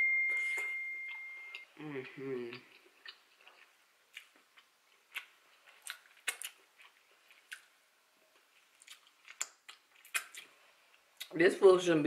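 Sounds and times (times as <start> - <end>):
quiet close chewing: 1.1 - 11.3
wet mouth clicks: 8.8 - 10.5.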